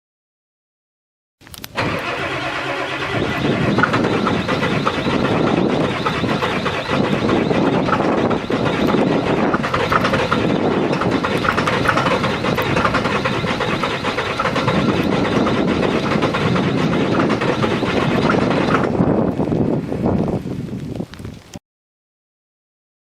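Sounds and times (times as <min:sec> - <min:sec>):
diesel engine clattering: 0:01.8 - 0:20.0.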